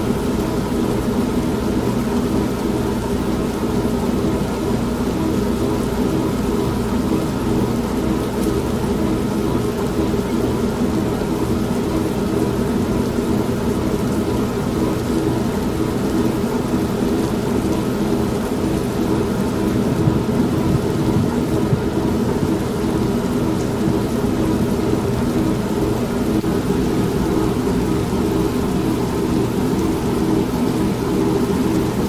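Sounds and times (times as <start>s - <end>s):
steady rain: 0.0s - 32.0s
washing machine hum: 0.0s - 32.0s
thunder: 19.8s - 24.5s.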